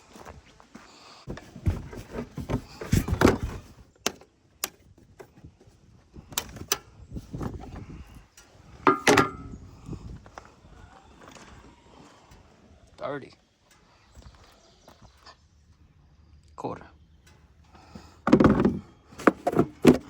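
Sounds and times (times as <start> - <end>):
clicks and knocks of parts: 8.4 - 9.5
low thuds: 8.9 - 9.8.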